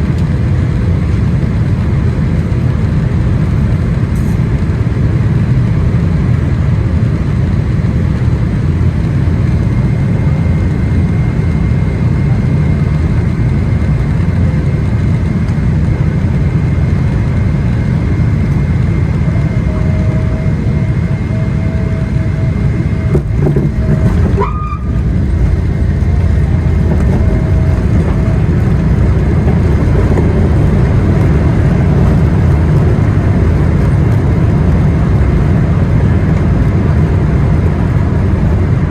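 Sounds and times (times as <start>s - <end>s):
aircraft cabin engine rumble: 0.0s - 38.9s
faint steady whine: 3.4s - 38.9s.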